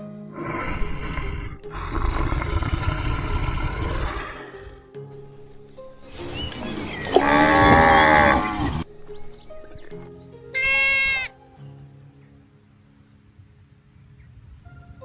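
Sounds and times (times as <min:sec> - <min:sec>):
background music: 0:00.0 - 0:15.0
animal bleating: 0:10.6 - 0:11.3.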